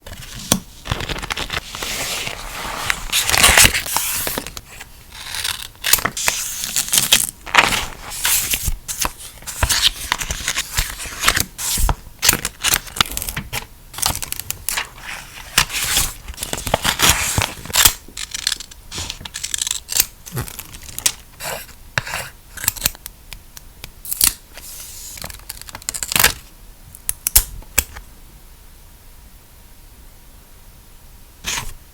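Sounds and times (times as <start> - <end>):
paper rustling and scraping: 0.0 - 21.6, 31.4 - 31.8
paper tearing: 0.9 - 13.0, 31.4 - 31.8.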